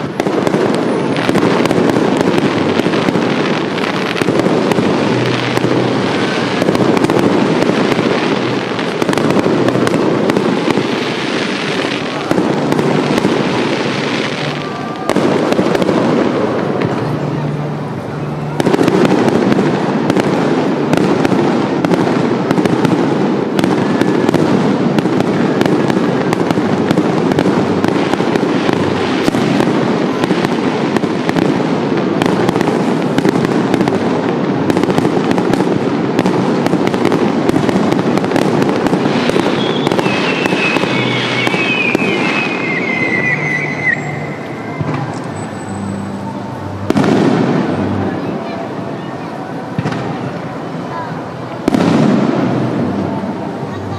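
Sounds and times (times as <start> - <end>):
fireworks crackling and popping: 0.0 - 53.9
low rumble of firework bursts: 0.0 - 53.9
falling firework whistles: 39.2 - 46.2.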